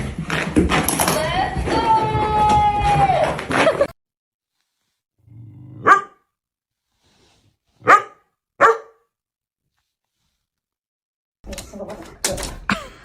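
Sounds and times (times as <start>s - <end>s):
dog growling: 5.2s - 6.1s
dog barking: 5.8s - 6.3s, 7.8s - 9.1s.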